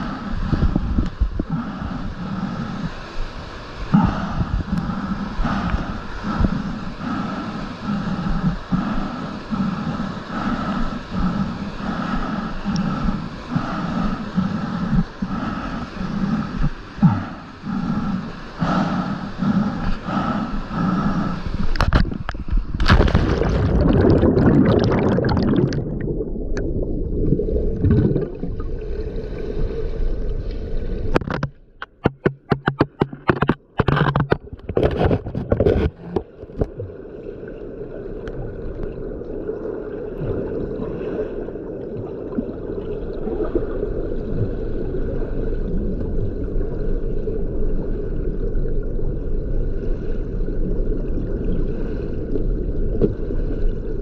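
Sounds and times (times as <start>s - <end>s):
muffled gurgling water: 0.0s - 54.0s
sharp knocks and splashes: 21.8s - 25.8s, 31.2s - 36.9s.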